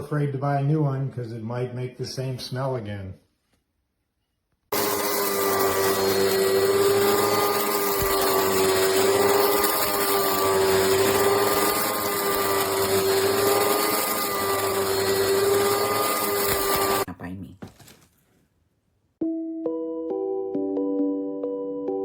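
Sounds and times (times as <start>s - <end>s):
vacuum cleaner motor whine: 4.7s - 17.1s.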